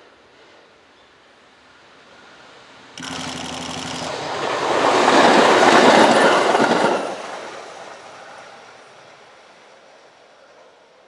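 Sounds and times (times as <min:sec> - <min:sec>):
train wheels on rails: 0:02.2 - 0:11.0.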